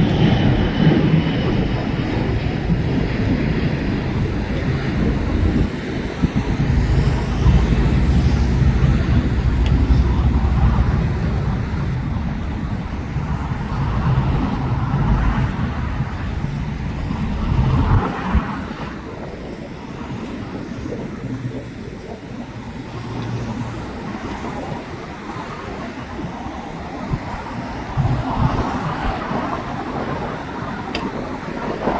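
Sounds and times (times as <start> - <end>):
jet engines rumbling: 0.0 - 31.9
road traffic noise: 0.0 - 31.9.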